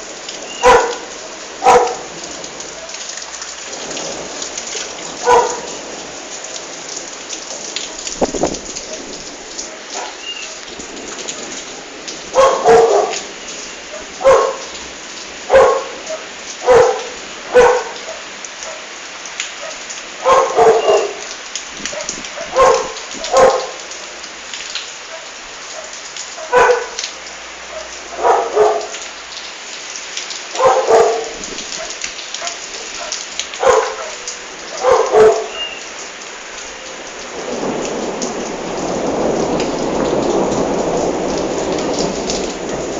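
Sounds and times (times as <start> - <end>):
steady rain falling: 0.0 - 42.9
dog barking: 0.6 - 3.2, 5.1 - 5.8, 9.7 - 10.7, 12.3 - 14.8, 15.4 - 19.0, 19.6 - 21.3, 21.9 - 23.9, 25.0 - 27.0, 27.6 - 29.1, 30.5 - 35.8.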